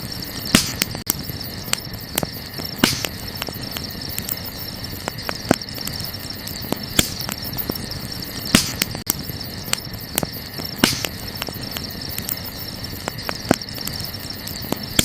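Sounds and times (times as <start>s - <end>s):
campfire crackling and popping: 0.0s - 15.0s
night insects chorus: 0.0s - 15.0s.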